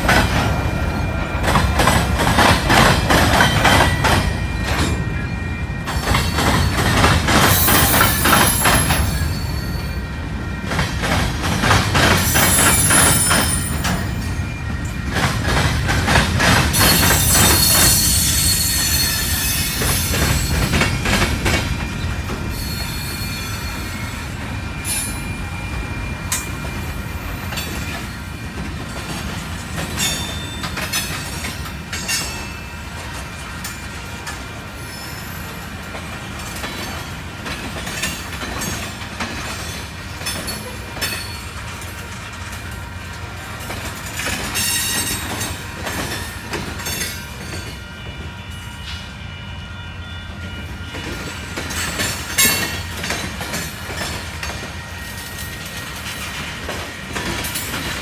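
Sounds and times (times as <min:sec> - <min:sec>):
train wheels clacking over rail joints: 0:00.0 - 0:05.1, 0:05.8 - 0:09.4, 0:10.6 - 0:14.3, 0:14.9 - 0:23.2, 0:26.3 - 0:34.6, 0:35.5 - 0:47.8, 0:50.9 - 0:58.0
high-pitched wheel squeal: 0:16.8 - 0:20.7, 0:22.5 - 0:27.0, 0:34.8 - 0:35.6.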